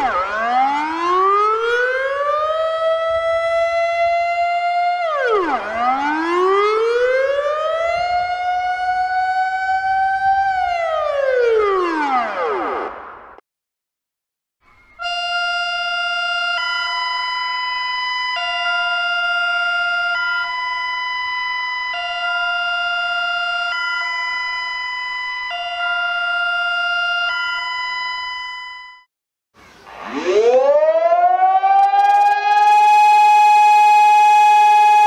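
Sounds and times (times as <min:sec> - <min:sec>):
electronic two-tone alarm: 0:15.0 - 0:29.1.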